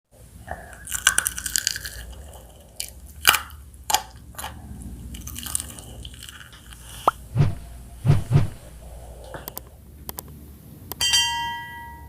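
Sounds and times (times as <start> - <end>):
fried chicken crunching: 0.8 - 4.5, 5.1 - 7.2.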